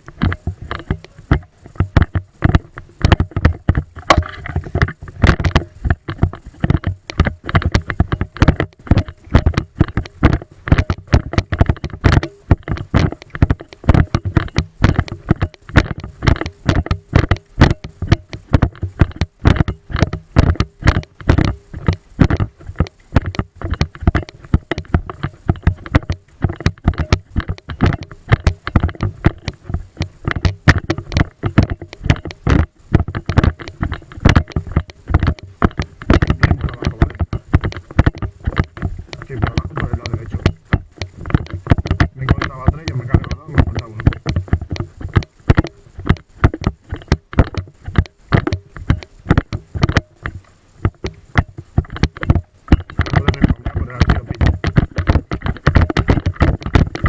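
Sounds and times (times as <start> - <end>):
dull thuds: 0.0 - 57.0
sharp knocks and clicks: 0.0 - 57.0.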